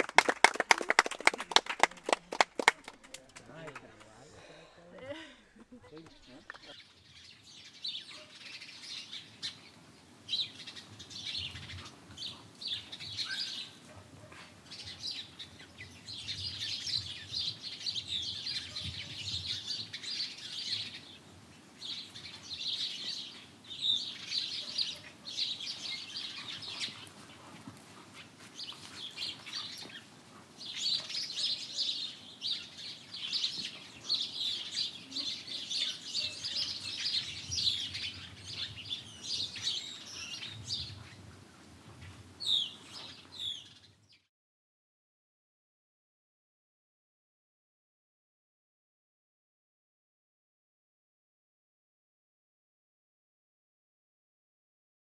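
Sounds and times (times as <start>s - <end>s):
small birds chirping: 5.8s - 44.3s.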